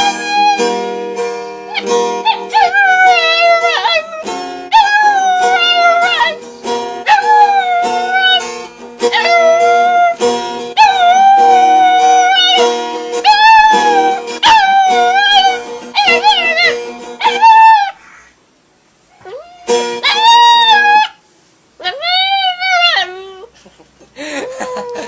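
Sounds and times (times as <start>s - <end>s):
dog howling: 1.7s - 6.4s, 7.0s - 8.4s, 9.1s - 10.2s, 10.8s - 12.6s, 13.2s - 18.0s, 19.2s - 21.2s, 21.8s - 23.5s, 24.5s - 25.0s.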